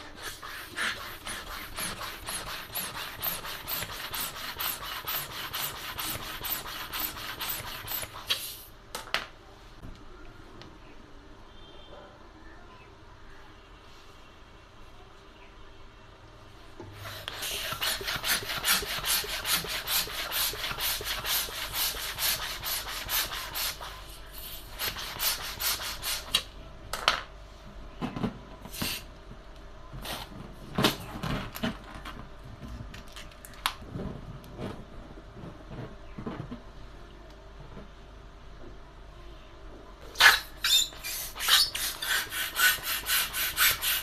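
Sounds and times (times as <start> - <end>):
hands rubbing balloon packaging: 0.0 - 8.4, 40.2 - 44.0.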